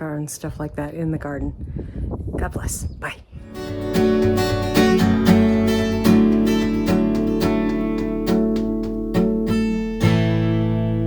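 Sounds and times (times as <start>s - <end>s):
strummed acoustic guitar chords: 3.4s - 11.0s.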